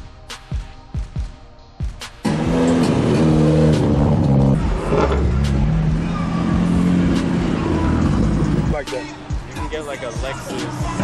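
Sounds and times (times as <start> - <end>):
car engine accelerating hard: 2.2 - 8.8.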